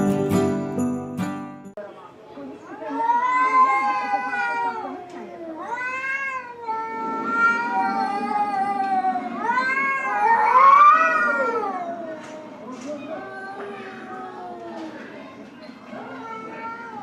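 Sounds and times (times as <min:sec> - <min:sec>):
cat yowling: 0:02.9 - 0:12.3, 0:16.0 - 0:17.0.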